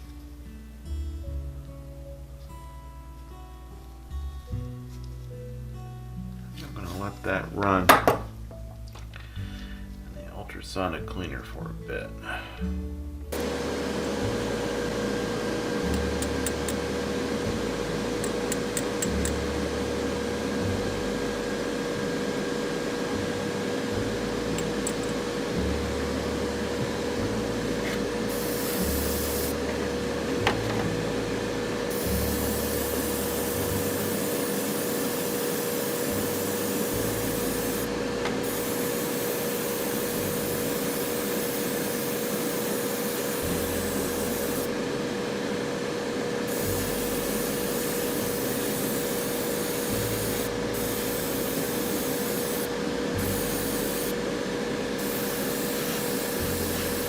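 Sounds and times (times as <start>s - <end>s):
ultrasonic cleaner hissing: 13.4s - 44.8s, 46.3s - 54.3s, 54.9s - 57.0s
constant hum: 14.2s - 57.0s.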